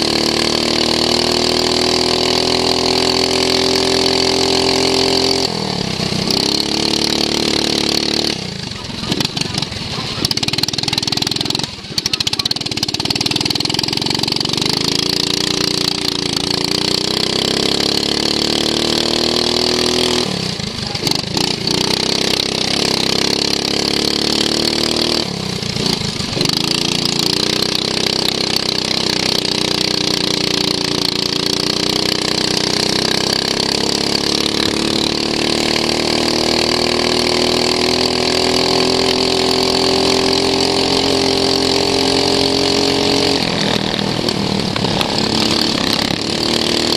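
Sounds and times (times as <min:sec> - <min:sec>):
racing lawn mower engine: 0:00.0 - 0:46.9.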